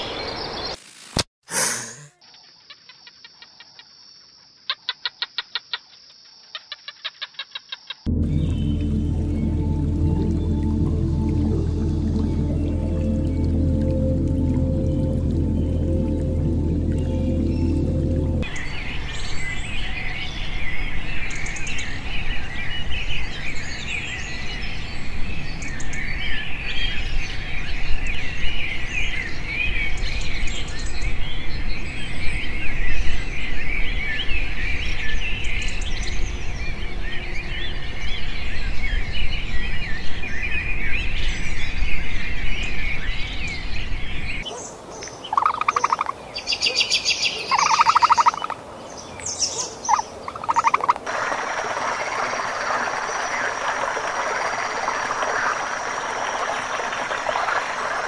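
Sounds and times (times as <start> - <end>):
low outdoor rumble: 8.1 - 18.5
rapid pulsed trilling calls: 45.3 - 46.1, 47.5 - 48.6, 49.9 - 51.0.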